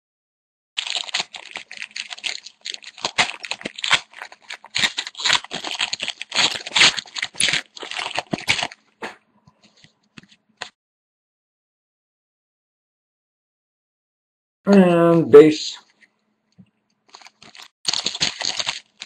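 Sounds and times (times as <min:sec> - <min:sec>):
foil wrapper crinkling and tearing: 0:00.8 - 0:09.0, 0:17.1 - 0:19.0.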